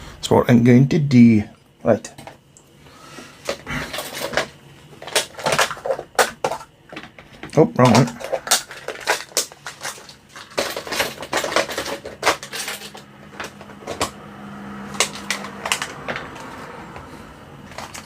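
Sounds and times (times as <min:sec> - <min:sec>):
small hard objects clicking and rattling: 0:03.4 - 0:14.2, 0:14.8 - 0:16.6, 0:17.7 - 0:18.0.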